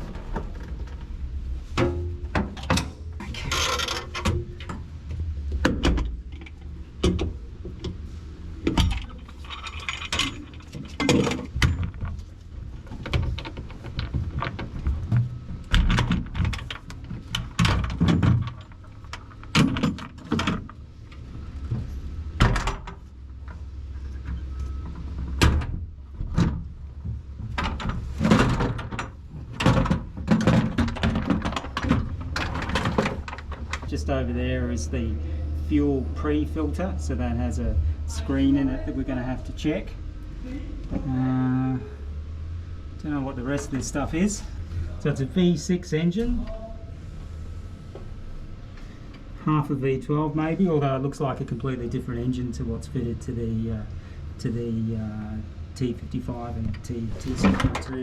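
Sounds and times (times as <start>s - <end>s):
metallic knocks and clunks: 0.0s - 8.0s, 8.6s - 20.8s, 24.2s - 34.0s
low steady hum: 0.0s - 58.0s.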